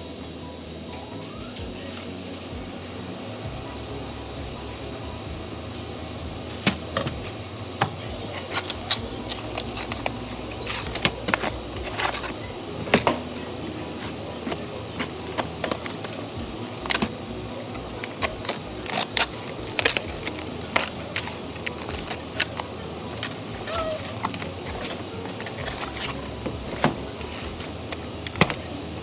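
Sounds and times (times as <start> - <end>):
background noise: 0.0 - 29.0
plastic clicking and crackling: 7.8 - 28.8.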